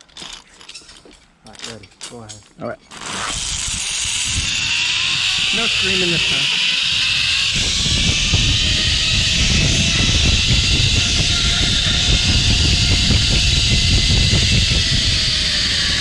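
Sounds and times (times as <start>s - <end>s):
zipline pulleys hissing on cable: 3.0s - 16.0s
wind rushing past microphone: 3.3s - 16.0s.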